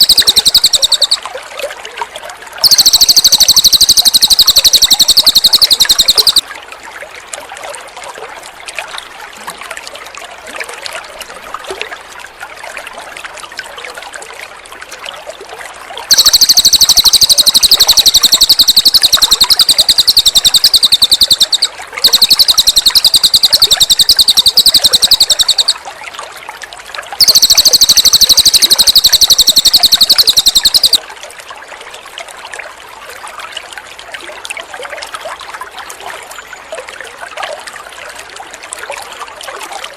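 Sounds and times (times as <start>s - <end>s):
songbird trilling: 0.0s - 1.2s, 2.6s - 6.4s, 16.1s - 25.8s, 27.2s - 31.0s
water trickling: 0.0s - 39.9s.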